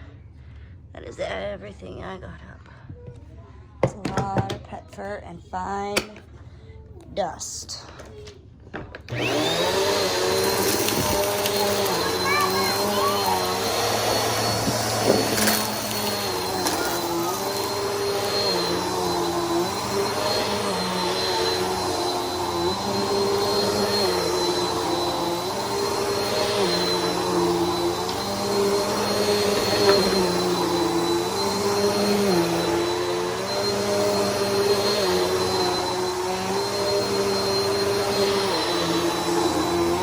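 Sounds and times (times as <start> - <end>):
vacuum cleaner running: 8.8 - 40.0.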